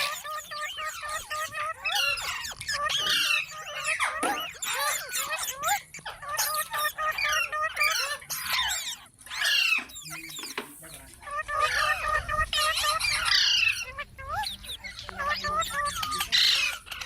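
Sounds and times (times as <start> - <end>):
parrots calling: 0.0 - 17.0.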